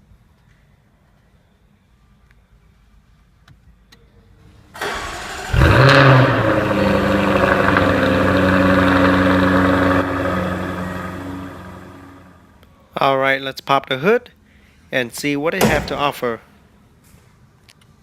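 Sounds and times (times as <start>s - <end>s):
car engine starting and idling: 4.8s - 12.5s, 15.6s - 16.4s.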